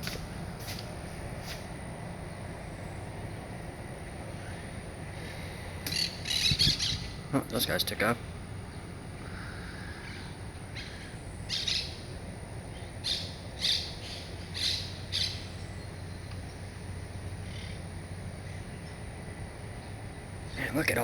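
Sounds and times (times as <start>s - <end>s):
parakeets calling: 4.4s - 19.0s.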